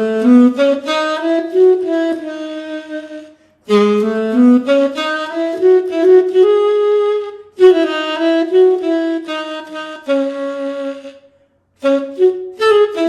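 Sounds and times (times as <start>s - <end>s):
saxophone melody: 0.0s - 13.0s.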